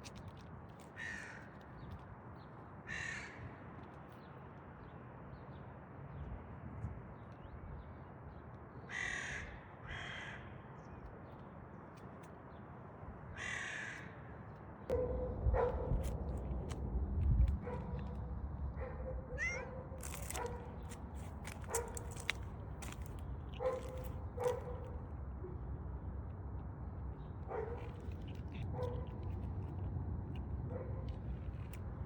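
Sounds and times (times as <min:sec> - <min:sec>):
bird cawing: 0:01.0 - 0:01.5, 0:02.8 - 0:03.4, 0:08.9 - 0:10.5, 0:13.4 - 0:14.3
low background rumble: 0:14.9 - 0:32.0.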